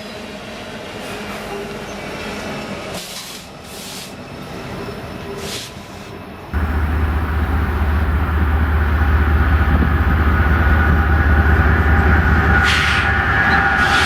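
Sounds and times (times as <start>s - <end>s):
diesel locomotive rumbling: 6.6s - 14.0s.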